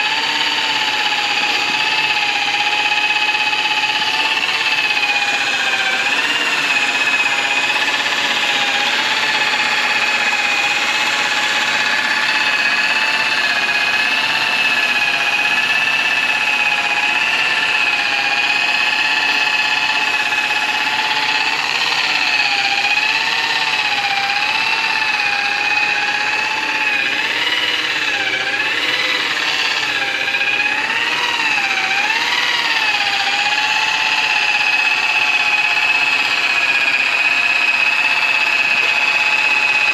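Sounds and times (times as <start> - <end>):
polisher motor whining: 0.0 - 39.9.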